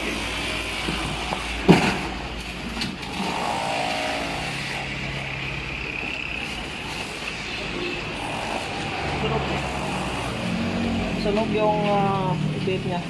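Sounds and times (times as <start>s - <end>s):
workshop background noise: 0.0s - 13.0s.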